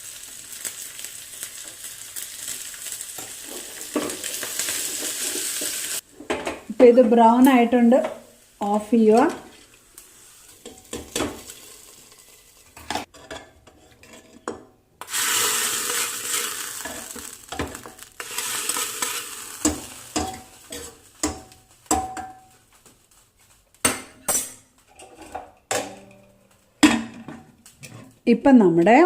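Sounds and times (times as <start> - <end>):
hot oil sizzling: 0.0 - 13.1, 15.0 - 24.6
ladle scraping a pot: 10.6 - 21.5.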